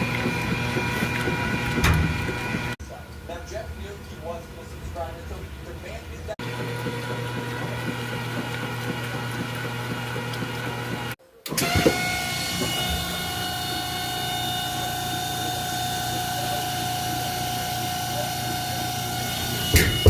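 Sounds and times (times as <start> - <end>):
washing machine high whine: 0.0 - 2.8, 6.4 - 20.0
washing machine humming: 0.0 - 2.8, 6.3 - 20.0.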